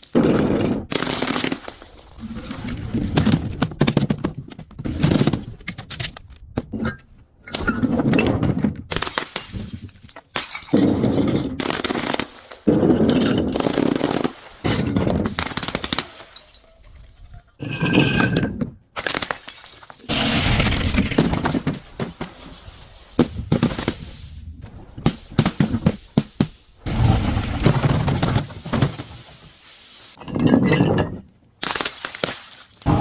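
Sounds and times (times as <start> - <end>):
objects crunching and cracking: 19.0 - 29.5, 31.6 - 33.0.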